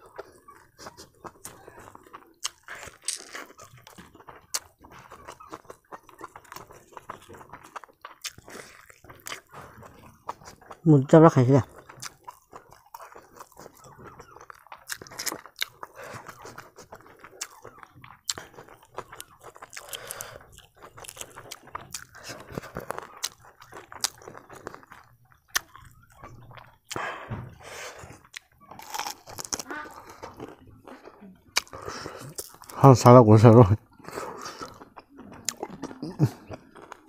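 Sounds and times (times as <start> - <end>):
person chewing: 0.0 - 37.0
small crunches: 27.7 - 32.8.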